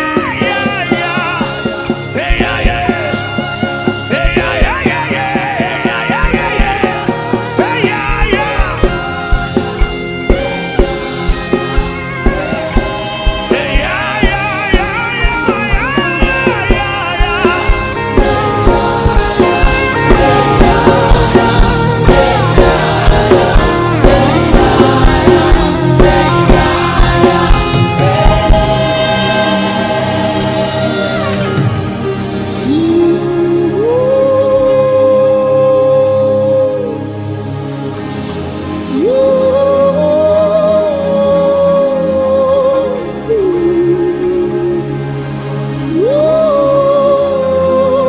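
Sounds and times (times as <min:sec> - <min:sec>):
band with steady drum beat: 0:00.0 - 0:34.8
gospel singing with vibrato: 0:00.0 - 0:48.0.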